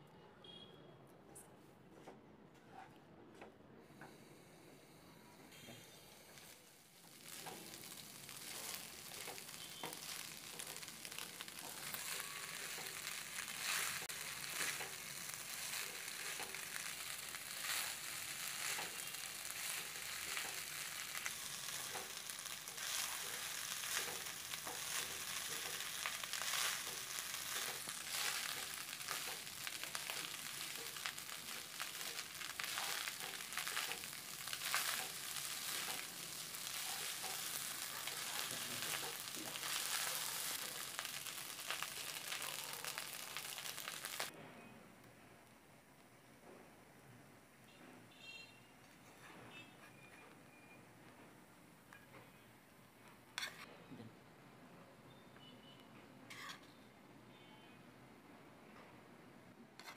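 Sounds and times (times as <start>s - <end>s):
food sizzling in a pan: 5.5s - 44.3s.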